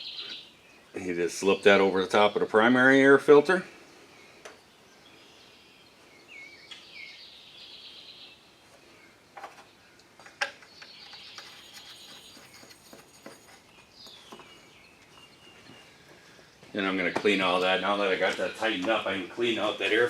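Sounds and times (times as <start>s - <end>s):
faint bird song: 0.0s - 20.0s.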